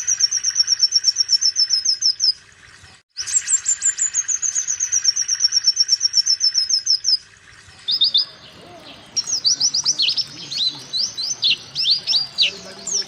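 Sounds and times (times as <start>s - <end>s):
bird singing high notes and whistles: 7.9s - 13.0s.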